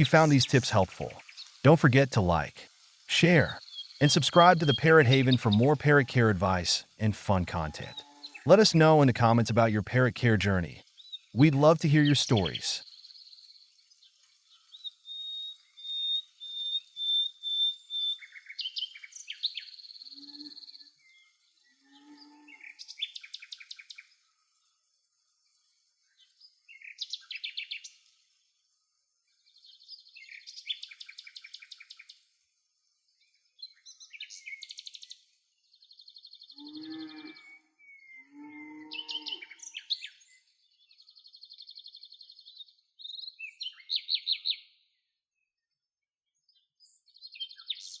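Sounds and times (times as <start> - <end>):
birds chirping and trilling: 3.5 - 8.5, 36.6 - 40.1.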